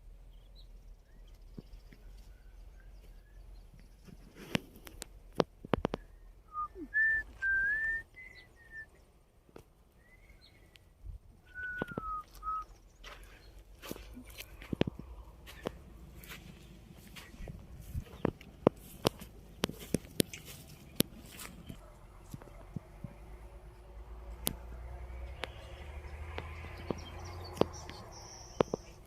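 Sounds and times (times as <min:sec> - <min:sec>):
whistled notes gliding: 0:06.5 - 0:09.0, 0:11.5 - 0:12.7.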